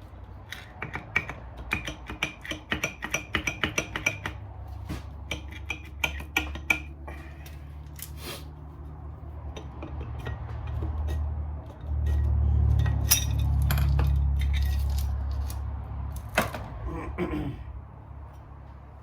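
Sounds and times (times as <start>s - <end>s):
metal tools clinking: 12.0s - 15.6s.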